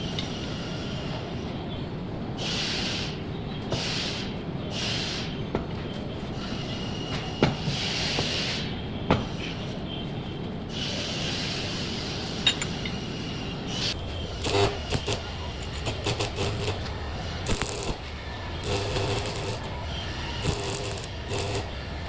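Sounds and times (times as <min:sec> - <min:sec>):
workshop background: 0:00.0 - 0:22.0
crackling welding arc hiss: 0:13.9 - 0:22.0.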